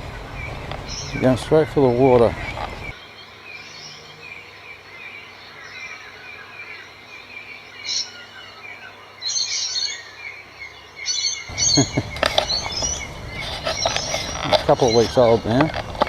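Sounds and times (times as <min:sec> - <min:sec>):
rustling noise: 0:00.0 - 0:03.0, 0:11.5 - 0:16.0
small birds chirping: 0:00.0 - 0:16.0.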